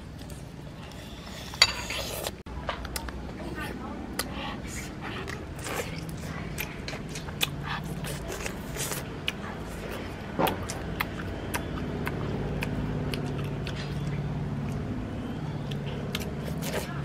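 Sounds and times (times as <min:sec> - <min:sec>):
biting and chewing: 0:04.0 - 0:17.0
low motor hum: 0:09.0 - 0:17.0.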